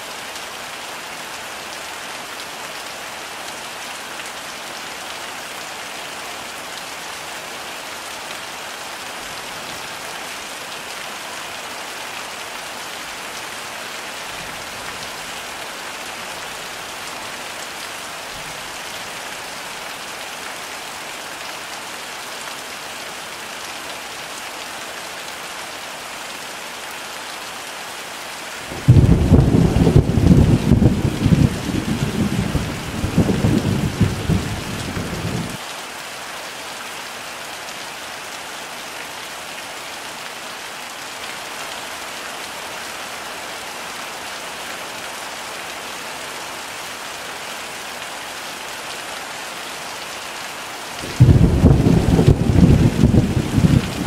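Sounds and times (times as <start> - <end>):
heavy rain pouring: 0.0 - 54.0
thunder rumbling: 28.7 - 35.6, 51.1 - 54.0.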